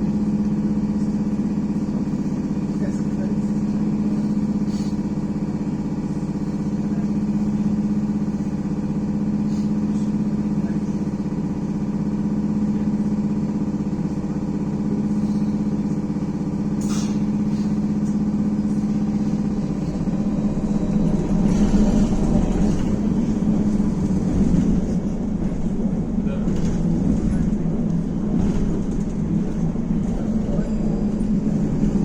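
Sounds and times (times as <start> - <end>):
vehicle running noise: 12.6 - 32.0.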